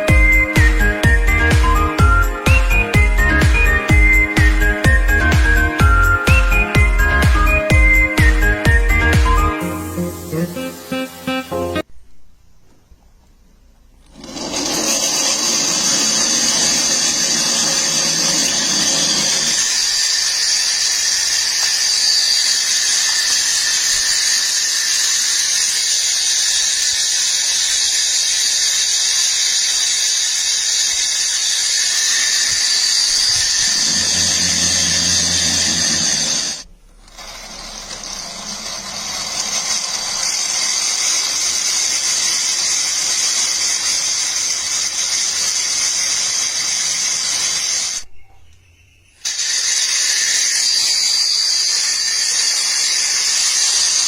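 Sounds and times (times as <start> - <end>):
turbine engine high-pitched whine: 30.5 - 40.9.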